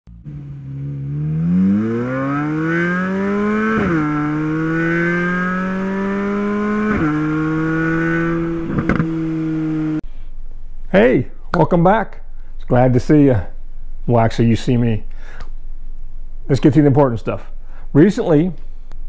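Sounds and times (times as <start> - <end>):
car engine accelerating hard: 0.1 - 10.0
exhaust pops: 8.2 - 9.3.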